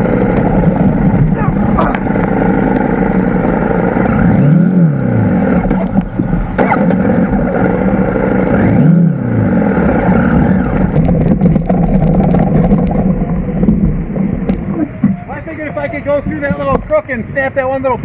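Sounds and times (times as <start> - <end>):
motorcycle engine revving: 0.0 - 15.4
clicks and clatter: 5.6 - 8.0, 10.8 - 15.2.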